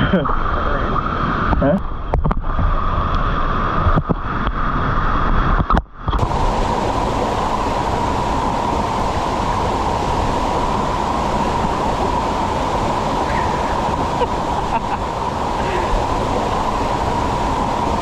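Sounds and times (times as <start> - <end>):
waterfall roaring: 6.2 - 18.0.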